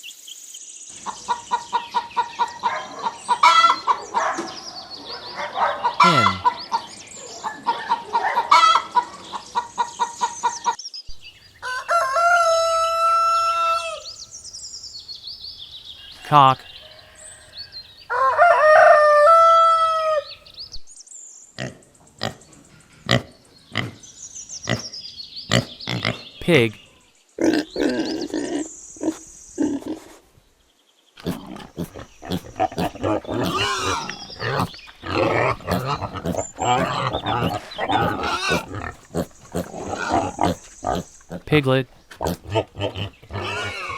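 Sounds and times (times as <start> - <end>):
hen clucking: 1.0 - 4.4, 5.6 - 10.7, 31.2 - 43.9
pigs grunting and squealing: 5.8 - 9.1, 21.6 - 22.4, 23.0 - 24.0, 24.7 - 24.9, 25.5 - 26.4, 27.4 - 30.2, 31.2 - 43.9
rooster crowing: 11.6 - 14.2, 16.8 - 20.4.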